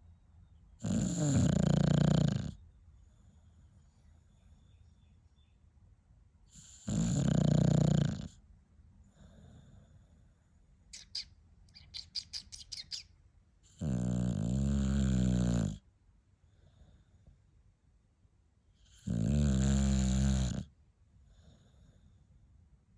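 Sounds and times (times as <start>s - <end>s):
dog rasping snores: 0.8s - 2.6s, 6.5s - 8.4s, 13.7s - 15.8s, 18.8s - 20.7s.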